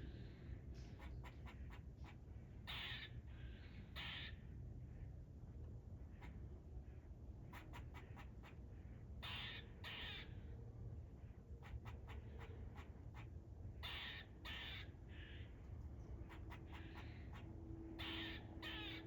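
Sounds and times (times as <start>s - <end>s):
squirrel harsh calls: 2.6s - 3.2s, 4.0s - 4.4s, 9.2s - 10.4s, 11.6s - 15.4s, 16.2s - 19.0s
squirrel barking: 7.5s - 8.6s, 11.6s - 15.3s, 16.2s - 19.0s.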